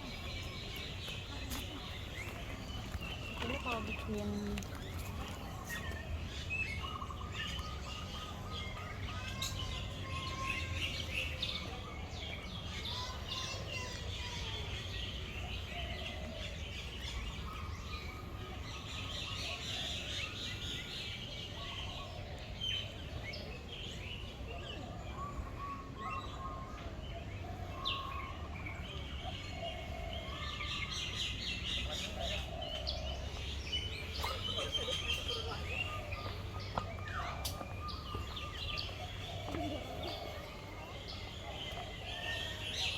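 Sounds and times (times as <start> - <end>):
birds chirping and calling: 0.0 - 42.9.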